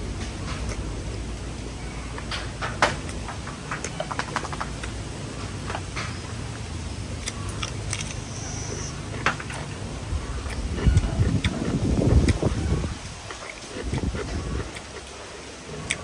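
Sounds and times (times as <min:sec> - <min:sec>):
biting into cucumber: 0:07.1 - 0:16.0
chewing crispy pork skin: 0:07.1 - 0:16.0.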